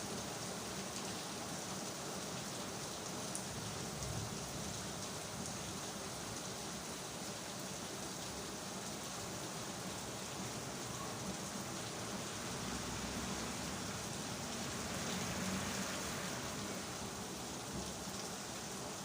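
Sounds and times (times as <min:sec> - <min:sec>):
rain hissing on hard surfaces: 0:00.0 - 0:19.0.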